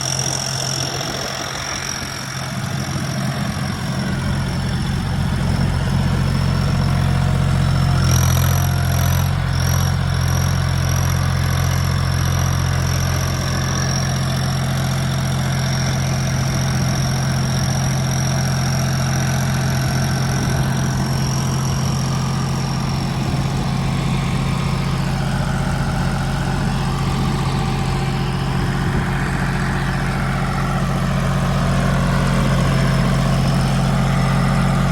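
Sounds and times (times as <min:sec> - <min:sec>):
high-pitched whine: 0:00.0 - 0:08.5
tractor engine idling: 0:00.0 - 0:34.9.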